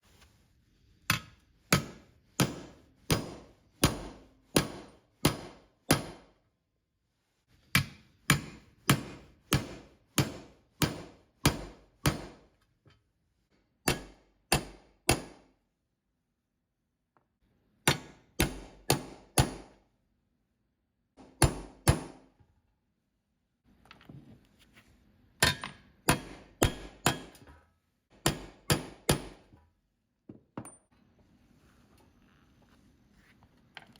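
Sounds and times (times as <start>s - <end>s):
hammer striking metal: 1.1s - 6.3s, 25.4s - 27.5s, 28.2s - 29.4s.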